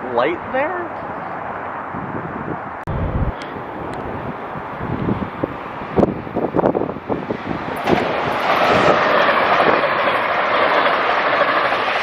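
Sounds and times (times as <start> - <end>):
wind buffeting microphone: 0.0 - 12.0
train wheels rushing on rail: 3.5 - 12.0.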